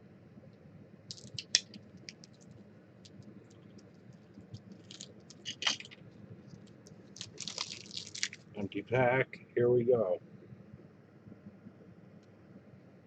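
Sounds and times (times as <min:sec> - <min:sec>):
card pack wrapper crinkling: 0:01.1 - 0:02.5, 0:04.6 - 0:08.5
cards clicking: 0:01.1 - 0:02.5.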